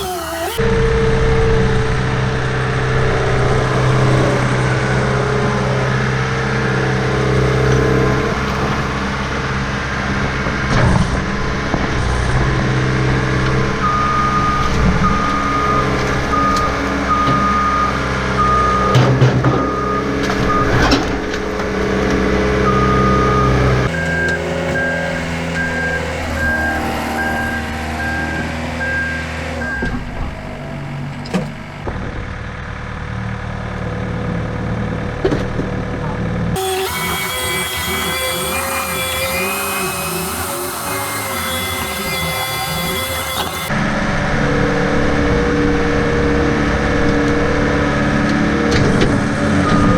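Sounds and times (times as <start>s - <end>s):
skid steer engine running: 0.0s - 49.9s
backup alarm beeping: 13.7s - 21.0s, 22.3s - 31.9s.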